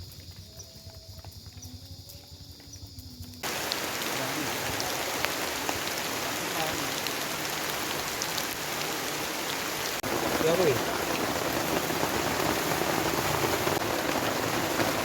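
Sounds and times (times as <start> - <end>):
heavy rain falling: 3.4 - 15.0.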